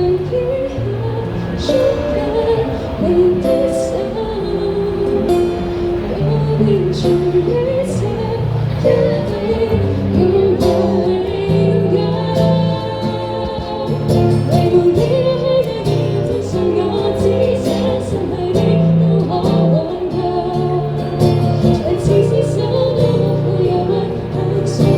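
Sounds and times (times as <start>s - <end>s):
person singing: 0.0s - 24.9s.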